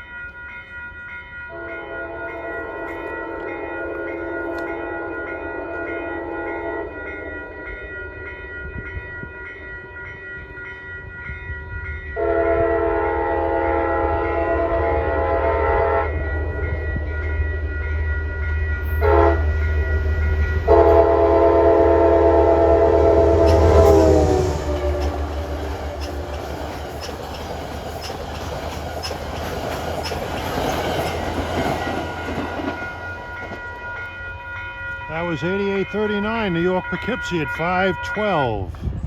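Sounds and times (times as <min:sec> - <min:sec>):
train rumble: 0:00.0 - 0:39.0
train air horn blasts: 0:01.5 - 0:07.7, 0:12.2 - 0:16.6, 0:18.8 - 0:19.8, 0:20.5 - 0:26.7.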